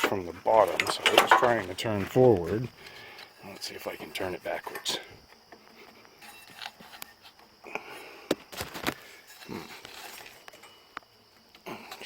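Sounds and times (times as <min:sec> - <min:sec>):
person breathing: 0:02.8 - 0:03.4, 0:07.6 - 0:08.4.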